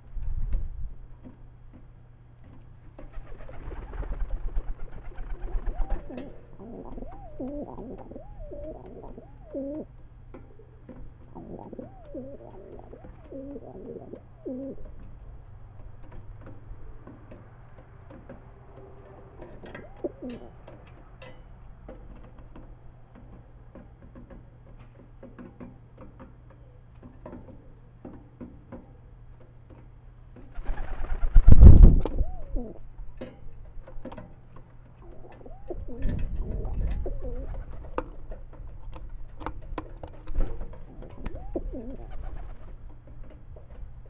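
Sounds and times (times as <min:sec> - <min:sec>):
pigeons cooing: 0:03.0 - 0:15.0, 0:18.4 - 0:20.8, 0:30.6 - 0:32.9, 0:35.0 - 0:38.1, 0:40.2 - 0:42.8.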